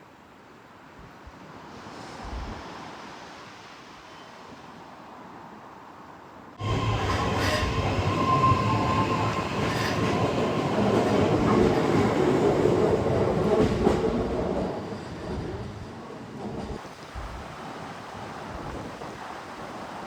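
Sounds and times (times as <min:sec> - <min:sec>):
train rumbling on rails: 0:06.6 - 0:17.5.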